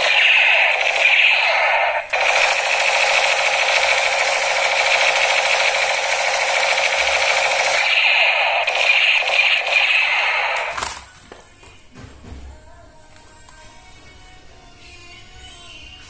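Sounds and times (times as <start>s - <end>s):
toy gun firing automatic rattle: 0.0s - 11.1s.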